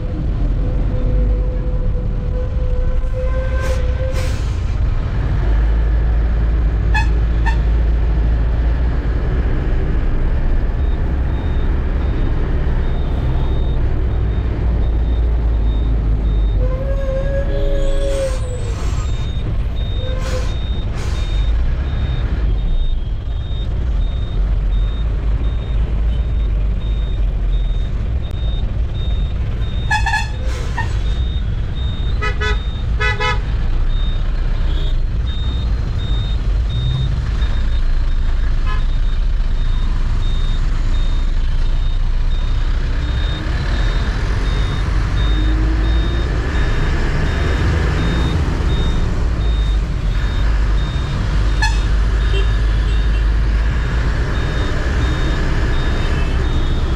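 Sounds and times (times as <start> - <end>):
truck engine and road rumble: 0.0 - 56.9
vehicle horns honking: 6.9 - 7.7, 29.9 - 30.9, 32.2 - 33.5, 51.5 - 53.2.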